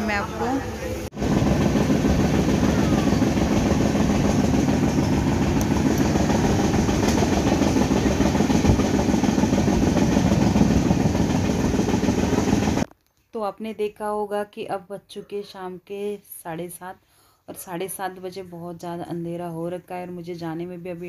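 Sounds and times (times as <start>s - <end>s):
train wheels on rails: 1.0s - 12.9s.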